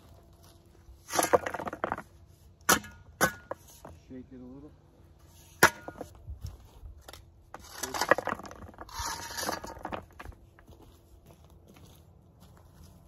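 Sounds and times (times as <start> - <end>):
rattling and scraping: 1.0 - 2.2, 7.0 - 10.7.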